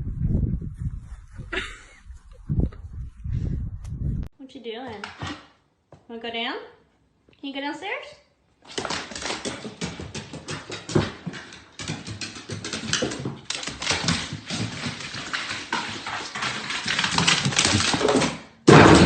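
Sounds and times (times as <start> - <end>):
clicking and scratching: 8.7 - 18.2.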